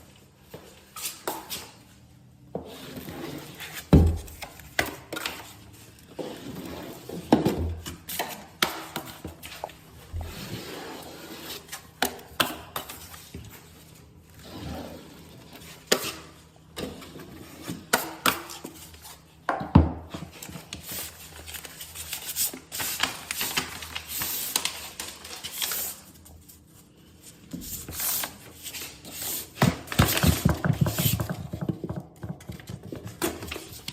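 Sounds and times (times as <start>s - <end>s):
taping knife scraping compound: 10.3s - 11.9s.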